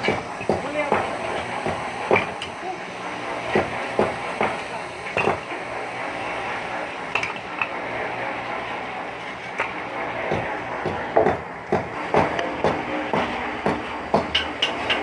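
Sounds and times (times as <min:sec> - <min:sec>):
steady background noise: 0:00.0 - 0:15.0
tools knocking on brick and metal: 0:10.3 - 0:15.0.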